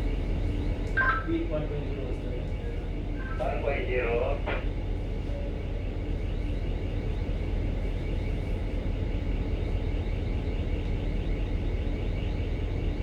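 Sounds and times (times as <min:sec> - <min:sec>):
ship engine rumble: 0:00.0 - 0:09.1.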